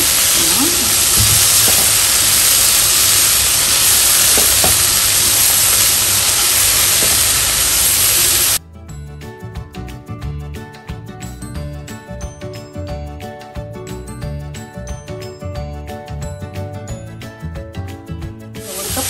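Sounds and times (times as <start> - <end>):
vegetables sizzling in a pan: 0.0 - 8.6, 18.6 - 19.0
light music with tinkling notes: 8.6 - 19.0.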